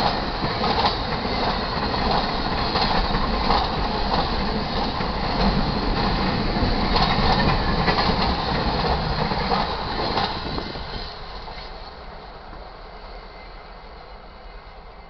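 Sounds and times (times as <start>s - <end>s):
wheels clacking over rail joints: 0.0s - 11.8s
freight train cars rolling past: 0.0s - 15.0s.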